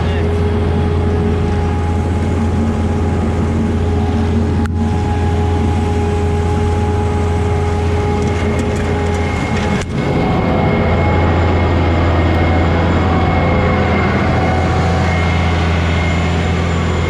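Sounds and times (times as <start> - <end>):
diesel engine humming: 0.0 - 17.0
steady whining tones: 0.0 - 17.0.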